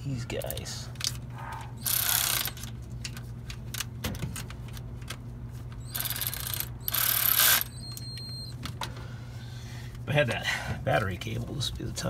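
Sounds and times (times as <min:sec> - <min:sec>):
steady low hum: 0:00.0 - 0:12.0
ratchet wrench clicking: 0:01.8 - 0:02.7, 0:05.8 - 0:08.2.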